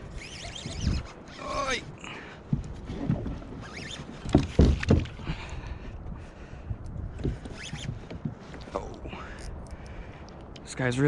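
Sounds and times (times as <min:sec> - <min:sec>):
knocks and thumps on kayak hull: 0:04.2 - 0:05.2.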